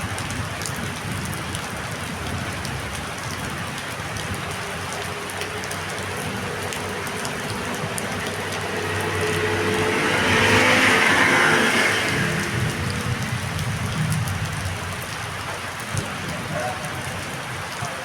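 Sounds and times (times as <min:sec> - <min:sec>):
heavy rain: 0:00.0 - 0:18.0
vehicle passing on wet road: 0:00.0 - 0:18.0.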